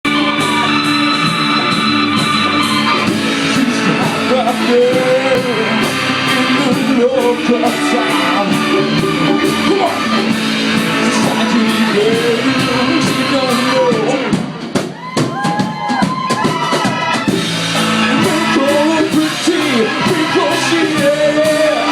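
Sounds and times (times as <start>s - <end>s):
live rock band playing: 0.0s - 21.9s
man singing: 2.9s - 14.5s, 18.1s - 21.9s.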